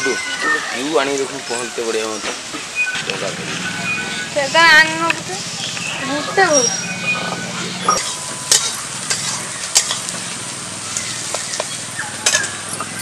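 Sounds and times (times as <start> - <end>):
chicken sizzling in pan: 8.0 - 13.0.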